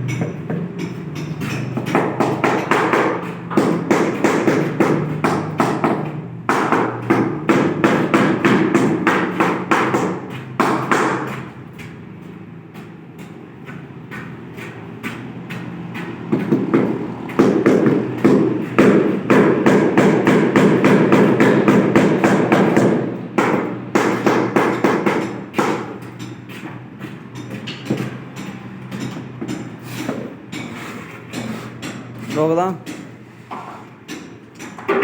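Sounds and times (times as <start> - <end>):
rapid tapping on ceramic tile: 0.0 - 11.5.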